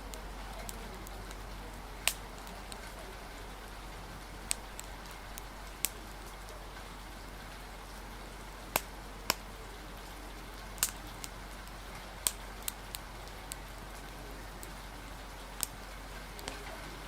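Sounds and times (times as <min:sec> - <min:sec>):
steady rain hiss: 0:00.0 - 0:17.0
wood fire popping and crackling: 0:00.0 - 0:17.0.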